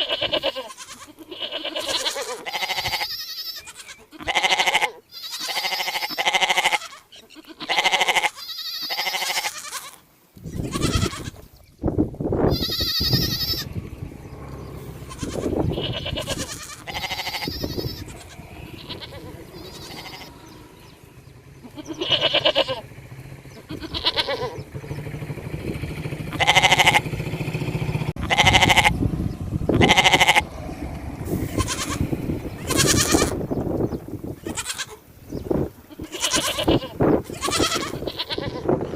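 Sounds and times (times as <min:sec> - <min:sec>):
sheep and goats bleating: 0:00.0 - 0:11.5, 0:12.4 - 0:22.9, 0:23.6 - 0:24.7, 0:26.3 - 0:27.1, 0:28.2 - 0:29.0, 0:29.7 - 0:30.5, 0:31.3 - 0:33.6, 0:34.3 - 0:35.1, 0:35.8 - 0:38.9
low rumble: 0:12.0 - 0:34.5.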